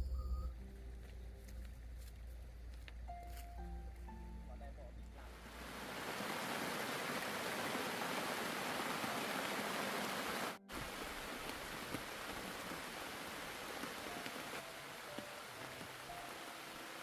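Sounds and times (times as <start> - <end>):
heavy rain pouring: 5.3 - 17.0.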